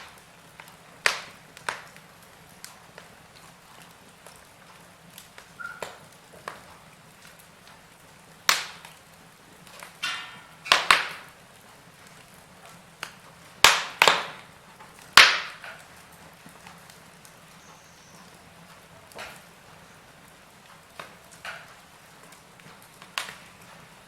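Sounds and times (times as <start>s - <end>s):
wood fire crackling and popping: 0.0s - 24.0s.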